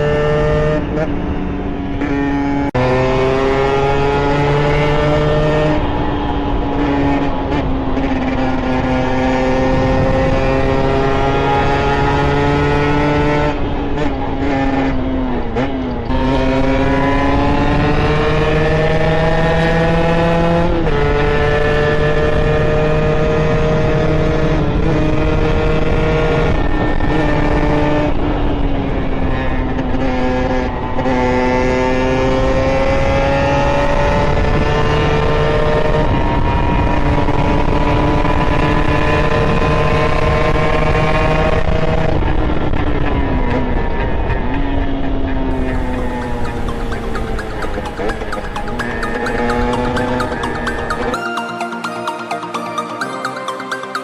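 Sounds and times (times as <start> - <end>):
two-stroke moped engine revving: 6.6 - 28.2, 45.5 - 51.1.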